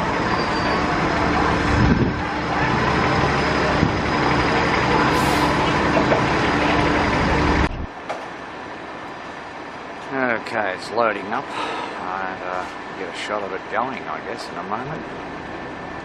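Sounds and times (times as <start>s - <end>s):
bus engine running: 0.0s - 16.0s
wind buffeting microphone: 0.9s - 8.0s.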